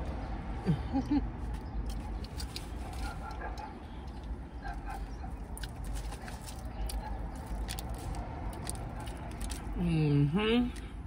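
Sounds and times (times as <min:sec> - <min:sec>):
chewing and mouth noises: 0:01.4 - 0:09.9.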